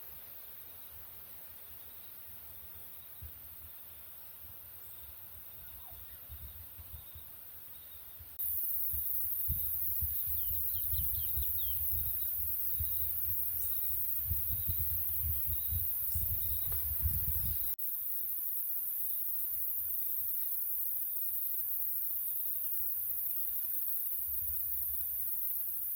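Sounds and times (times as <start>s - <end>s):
high-pitched insect chorus: 0.2s - 25.9s
low rumbling on microphone: 8.9s - 17.8s.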